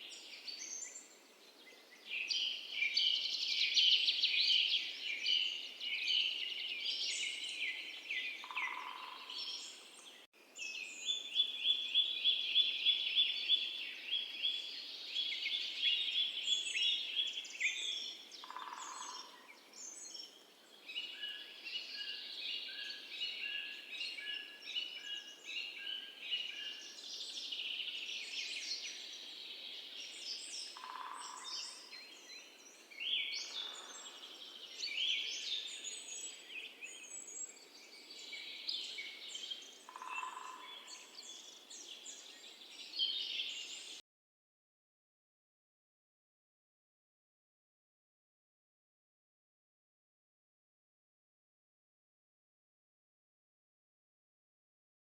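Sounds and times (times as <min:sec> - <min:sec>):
birds chirping and trilling: 0:04.4 - 0:10.3, 0:15.9 - 0:27.9, 0:28.5 - 0:44.0.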